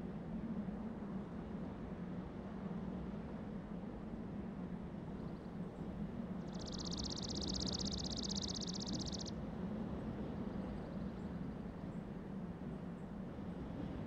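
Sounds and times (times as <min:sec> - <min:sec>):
steady low hum: 0:05.2 - 0:14.0
small bird trilling: 0:06.4 - 0:09.3.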